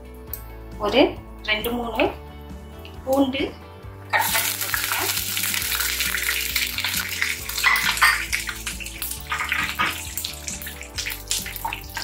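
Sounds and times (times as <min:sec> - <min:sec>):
garlic sizzling in hot oil: 0:04.1 - 0:12.0.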